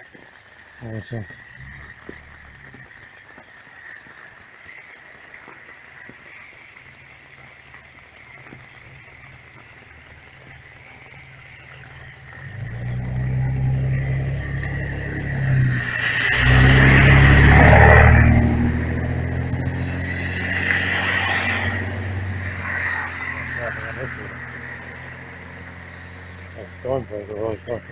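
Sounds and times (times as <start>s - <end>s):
car engine approaching: 0.8s - 3.0s, 8.4s - 27.9s.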